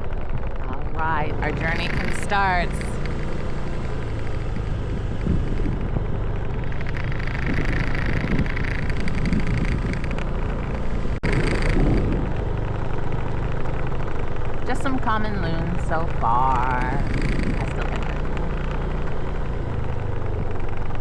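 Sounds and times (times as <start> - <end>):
scooter engine running: 0.0 - 21.0
wind noise on microphone: 0.0 - 21.0.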